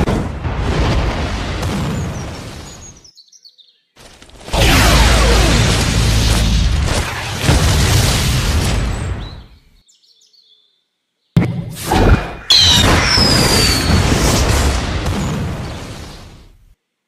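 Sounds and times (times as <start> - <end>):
faint high bird chirps: 2.2 - 4.0, 8.9 - 11.4
rumbling blast with whoosh: 4.5 - 9.4.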